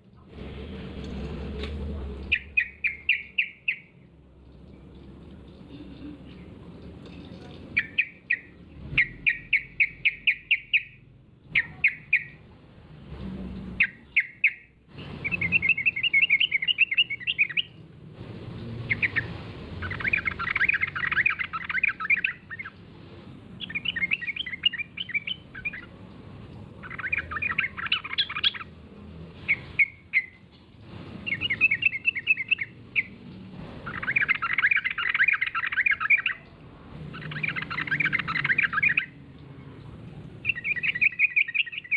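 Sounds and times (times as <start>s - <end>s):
bird chattering song: 2.2s - 4.0s, 7.6s - 12.4s, 13.8s - 17.8s, 18.8s - 22.8s, 23.6s - 26.0s, 26.8s - 28.8s, 29.4s - 30.4s, 31.2s - 41.9s.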